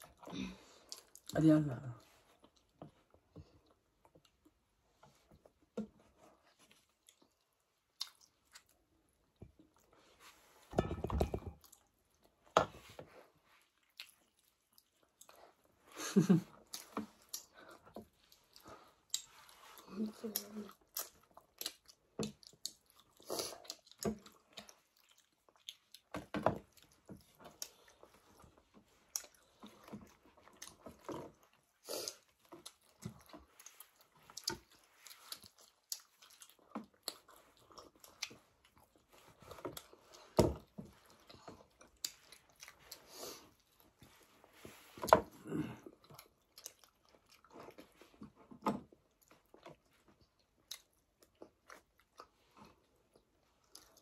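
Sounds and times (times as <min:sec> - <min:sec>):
wet chewing and smacking: 0:00.0 - 0:01.4, 0:02.0 - 0:10.7, 0:11.5 - 0:54.0.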